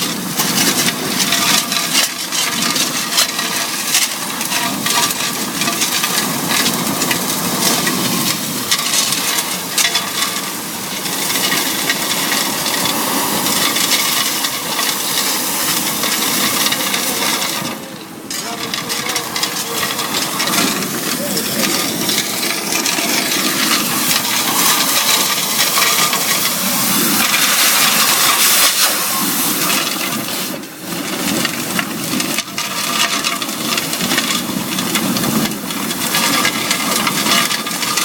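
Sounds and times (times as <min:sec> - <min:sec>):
debris rattling through pipe: 0:00.0 - 0:38.0
vacuum suction air rush: 0:10.4 - 0:30.7.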